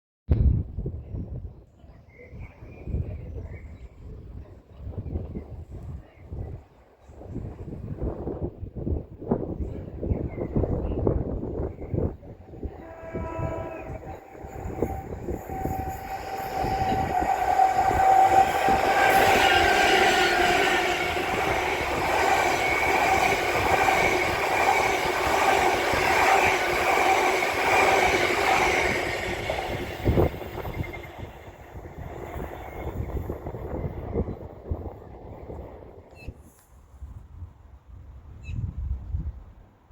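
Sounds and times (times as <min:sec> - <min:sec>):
train passing: 0:11.0 - 0:36.1
short horn tone: 0:12.7 - 0:17.0.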